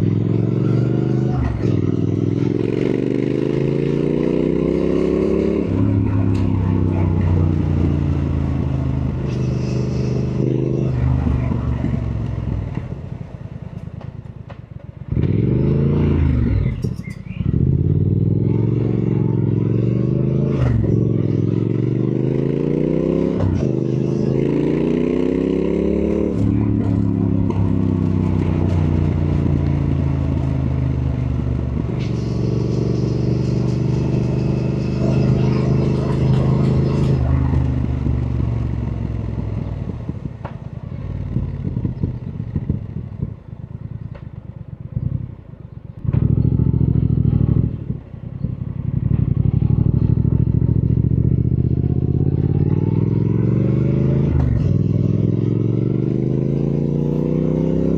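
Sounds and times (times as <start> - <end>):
motorcycle engine accelerating: 0.0 - 57.9
sharp clicks while coasting: 26.3 - 50.0.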